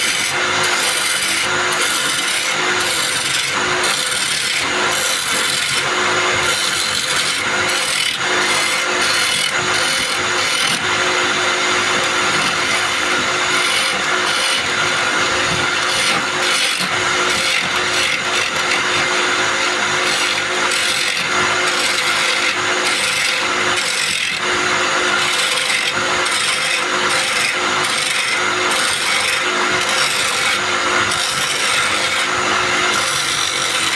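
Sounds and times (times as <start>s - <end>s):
chisel scraping spinning wood: 0.0s - 33.9s
wood lathe motor hum: 0.0s - 33.9s.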